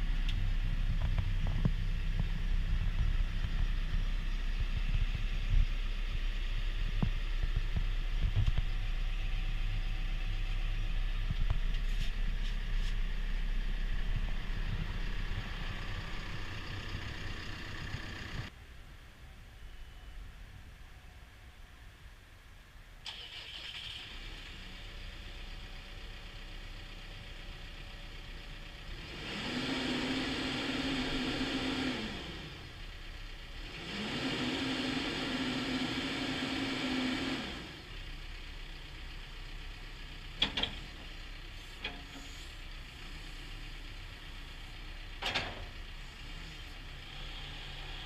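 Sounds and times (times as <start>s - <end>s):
diesel engine starting and idling: 0.0s - 18.5s, 23.0s - 48.0s
engine revving: 28.8s - 32.9s, 33.5s - 38.0s, 46.0s - 48.0s.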